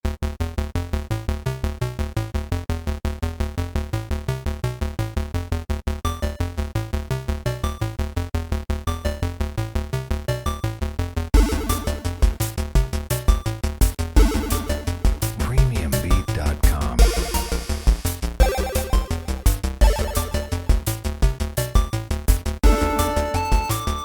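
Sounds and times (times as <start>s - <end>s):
electronic synthesizer music: 11.4s - 12.6s, 14.2s - 20.8s, 22.6s - 24.0s.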